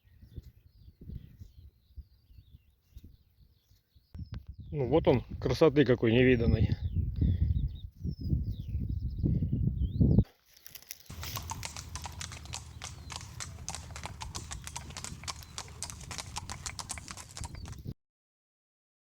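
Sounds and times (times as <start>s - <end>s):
horse hooves clip-clopping: 11.1s - 17.9s.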